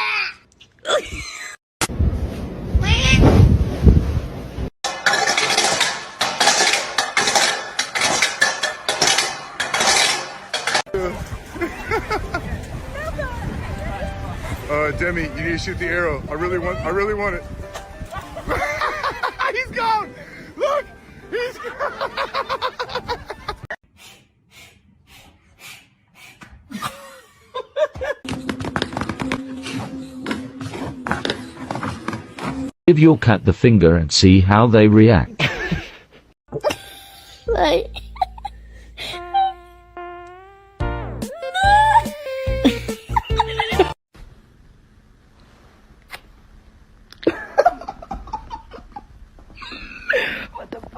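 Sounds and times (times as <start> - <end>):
hard objects clattering: 4.8 - 10.9
person laughing: 11.0 - 12.5, 18.1 - 19.6, 20.6 - 23.7, 26.7 - 28.2, 35.3 - 39.6, 41.4 - 44.0, 47.2 - 50.8.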